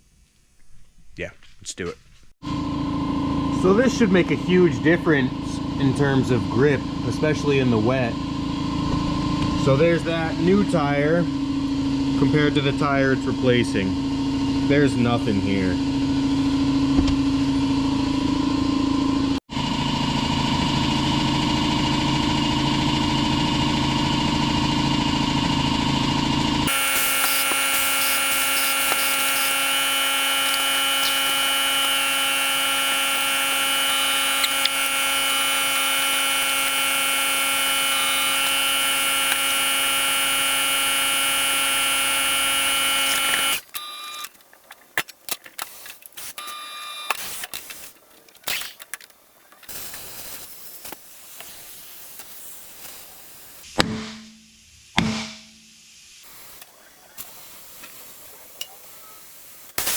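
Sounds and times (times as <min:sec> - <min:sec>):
shop machine motor whine: 0:02.4 - 0:44.3.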